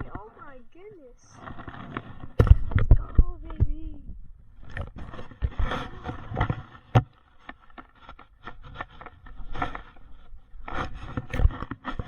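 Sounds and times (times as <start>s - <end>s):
handling knocks taps and scrapes: 0.0s - 4.0s, 4.6s - 12.0s.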